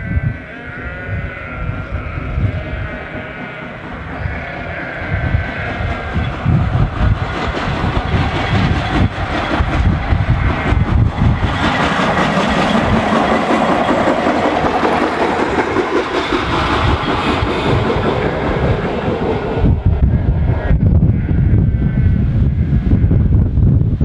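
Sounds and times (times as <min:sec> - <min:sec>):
train rumbling on track: 0:00.0 - 0:24.0
wheels rattling over rail joints: 0:02.0 - 0:20.1.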